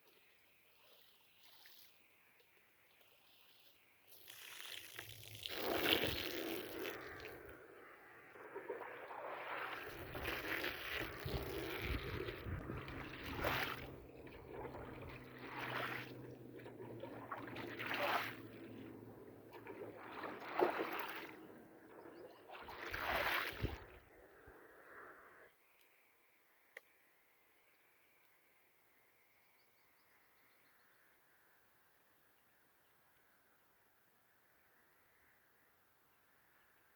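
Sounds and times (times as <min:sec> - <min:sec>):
water swishing: 0:04.2 - 0:24.1.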